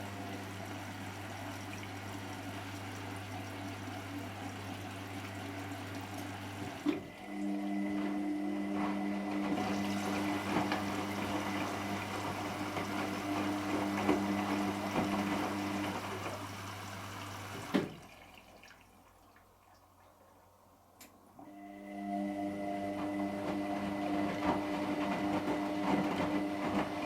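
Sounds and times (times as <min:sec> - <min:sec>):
water running through washing machine: 0:00.0 - 0:27.0.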